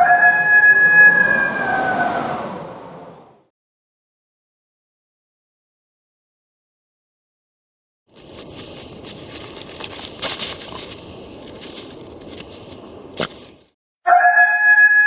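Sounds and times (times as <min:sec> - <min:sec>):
sliding pitched tone: 0:00.0 - 0:03.1
crackling and crunching: 0:08.1 - 0:13.7.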